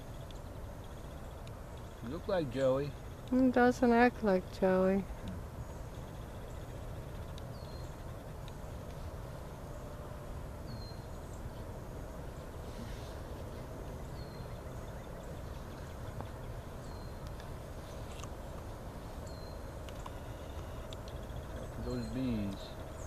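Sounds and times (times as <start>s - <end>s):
insect-like ticking: 0.0s - 9.0s, 19.3s - 23.0s.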